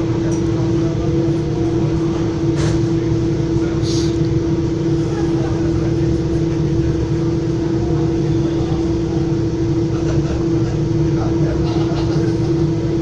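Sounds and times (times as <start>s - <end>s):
droning hum: 0.0s - 13.0s
train car rumble: 0.0s - 13.0s.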